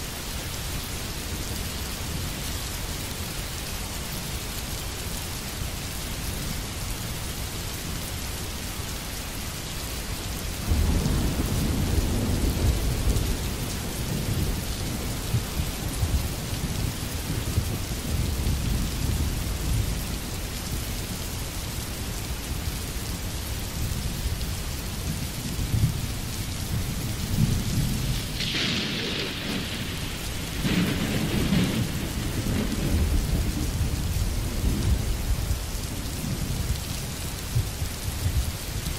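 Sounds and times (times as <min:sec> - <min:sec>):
steady rain: 0:00.0 - 0:38.9
low rolling thunder: 0:10.6 - 0:20.1, 0:24.3 - 0:38.5.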